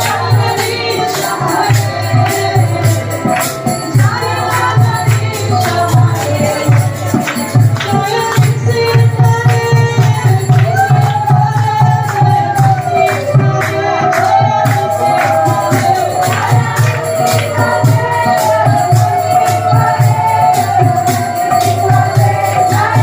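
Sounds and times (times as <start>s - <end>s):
jingling metal percussion: 0.0s - 23.0s
voices singing a sliding melody: 0.0s - 23.0s.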